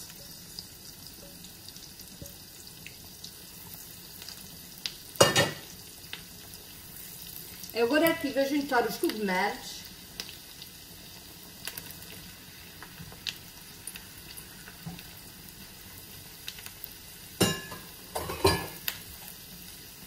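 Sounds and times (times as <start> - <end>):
vegetables sizzling in a frying pan: 0.0 - 20.0
small crackles: 1.7 - 5.1, 9.9 - 17.1, 18.8 - 19.9.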